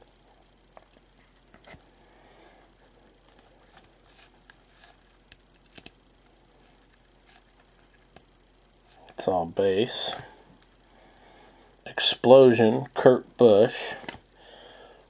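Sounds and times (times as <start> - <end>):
trading cards sliding and flipping: 3.3 - 6.0, 6.6 - 8.2
soft card clicks and snaps: 5.3 - 6.0.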